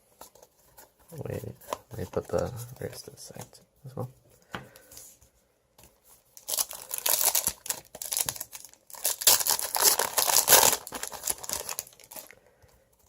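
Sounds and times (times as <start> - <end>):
foil wrapper crinkling: 6.4 - 12.4.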